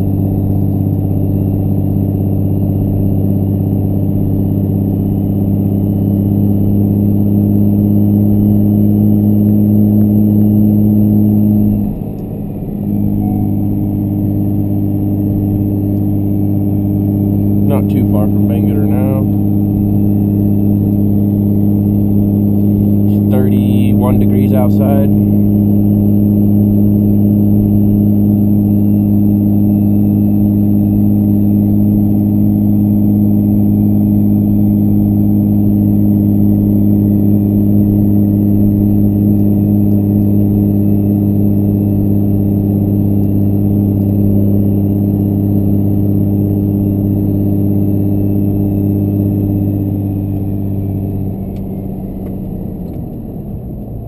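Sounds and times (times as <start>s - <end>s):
diesel engine droning: 0.0s - 54.0s.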